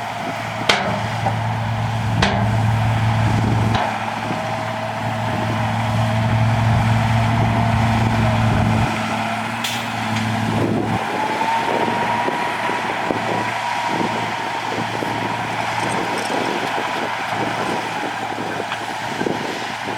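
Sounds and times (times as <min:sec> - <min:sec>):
rising machine whine: 0:00.0 - 0:17.4
diesel engine humming: 0:00.0 - 0:19.9
rattling clanks: 0:00.4 - 0:11.2.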